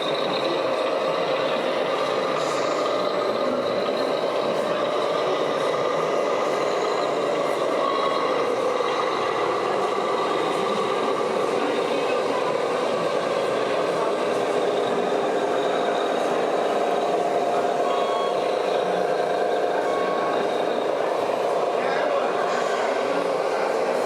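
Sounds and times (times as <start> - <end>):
toy truck motors whining: 0.0 - 24.0.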